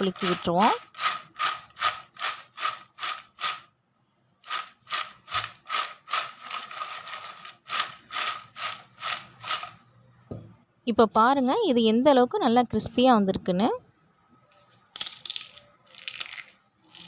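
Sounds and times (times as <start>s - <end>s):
chips rattling in a bowl: 0.0s - 3.7s, 4.4s - 9.8s, 14.9s - 17.0s.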